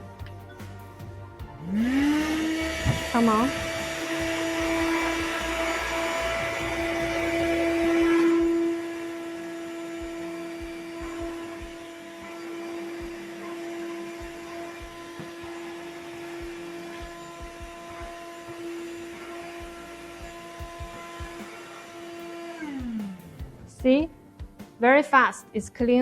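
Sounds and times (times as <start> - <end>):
handheld vacuum motor whine: 1.6 - 23.6.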